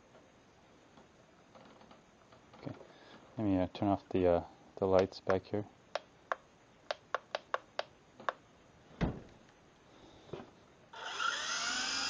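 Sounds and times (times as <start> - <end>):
electric rotor motor whine: 10.9 - 12.0.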